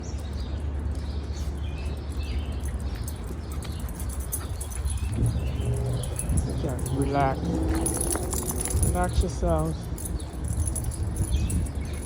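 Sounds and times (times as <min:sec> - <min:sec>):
low rumble: 0:04.3 - 0:12.0.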